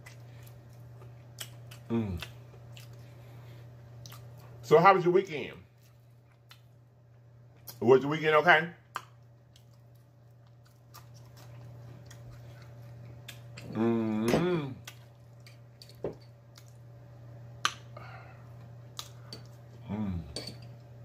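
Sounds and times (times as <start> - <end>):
man chewing with mouth clicks: 0.0 - 3.2, 3.9 - 4.6, 5.8 - 6.7, 8.9 - 15.7, 18.6 - 19.8
low electrical hum: 0.0 - 21.0
man humming mmm: 1.8 - 2.3, 13.6 - 14.9, 19.8 - 20.5.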